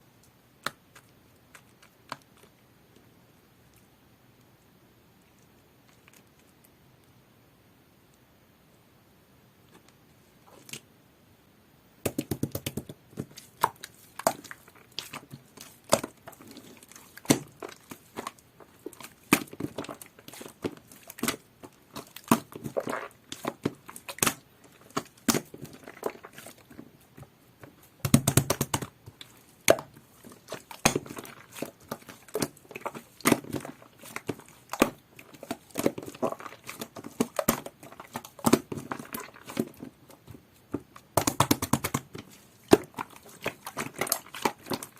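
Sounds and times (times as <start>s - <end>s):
hands squishing slime: 0.6s - 2.6s, 12.0s - 44.9s.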